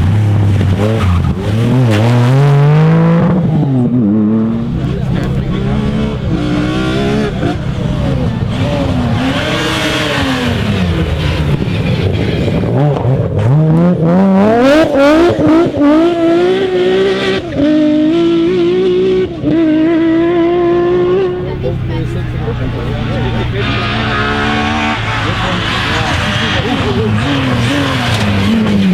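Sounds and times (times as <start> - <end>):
rally car engine revving: 0.0 - 28.9
tyres squealing: 4.5 - 12.7, 21.1 - 28.9.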